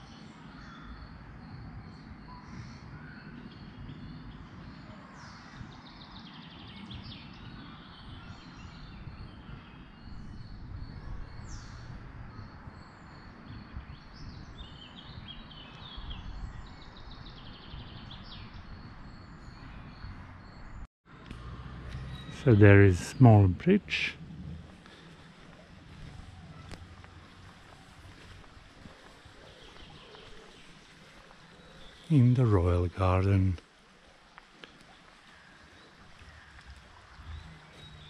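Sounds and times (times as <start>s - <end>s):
songbirds chirping and trilling: 0.0s - 38.0s
low uneven rumble: 21.2s - 38.0s.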